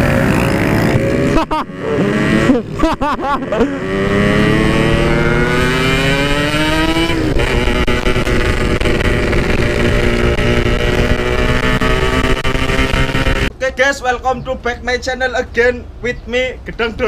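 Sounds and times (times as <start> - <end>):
motorcycle engine accelerating: 0.0 - 13.5.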